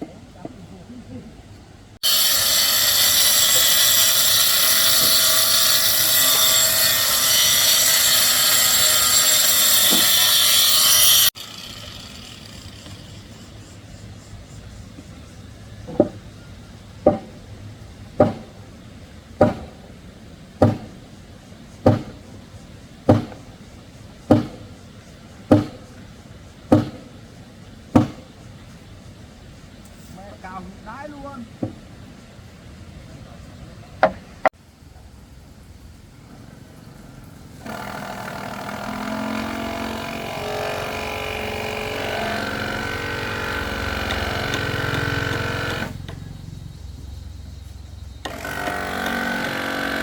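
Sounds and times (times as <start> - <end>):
power tool running: 2.0 - 13.5, 37.6 - 46.2, 48.2 - 50.0.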